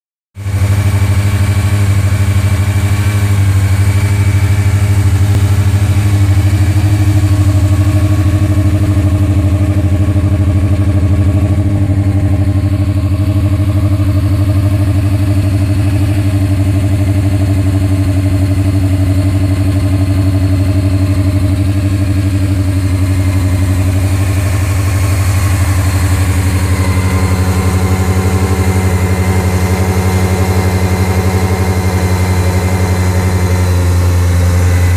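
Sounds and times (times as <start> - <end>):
motorcycle engine idling: 0.4 - 34.9.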